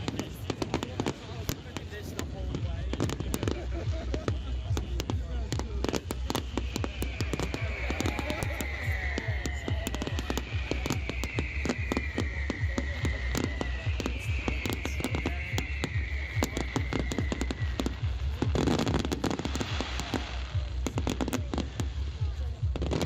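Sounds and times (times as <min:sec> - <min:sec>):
fireworks crackling pops and bangs: 0:00.0 - 0:23.0
high whistles falling in pitch: 0:06.4 - 0:18.2.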